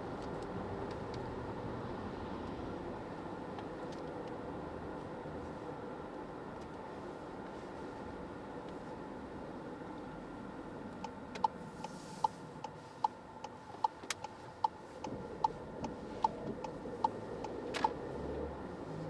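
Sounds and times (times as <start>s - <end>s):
engine and road noise: 0.0s - 19.0s
car cabin hum: 5.0s - 19.0s
turn signal ticking: 10.8s - 19.0s.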